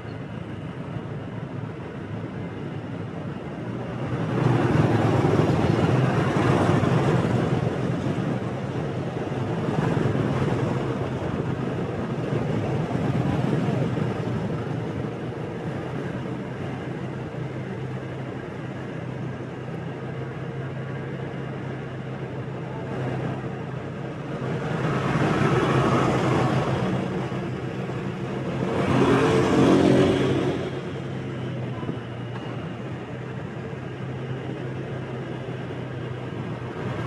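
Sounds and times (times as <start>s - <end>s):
road and wind noise: 0.0s - 37.0s
vehicles passing close by: 3.5s - 37.0s
motorbike engine cruising: 22.7s - 33.8s.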